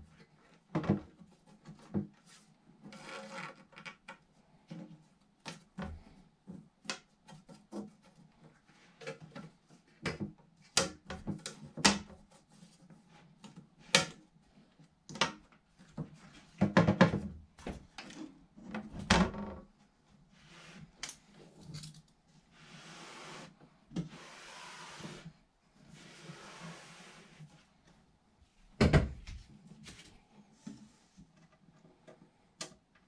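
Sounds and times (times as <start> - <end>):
plastic panels knocking and rattling: 16.0 - 18.0.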